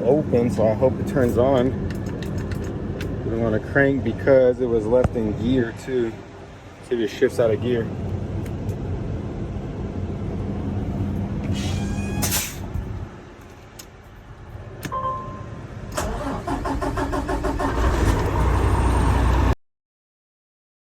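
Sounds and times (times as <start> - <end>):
brief beep: 14.9 - 15.6
diesel engine cranking and starting: 15.8 - 19.6.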